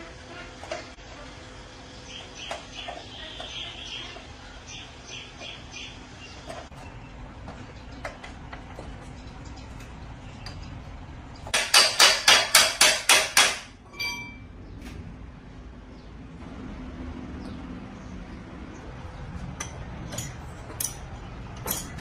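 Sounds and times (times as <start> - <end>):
metallic ring: 13.8 - 14.6.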